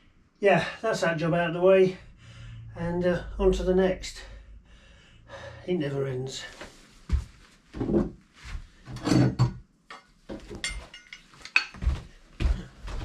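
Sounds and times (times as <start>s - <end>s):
objects knocking and clattering: 8.9s - 12.0s.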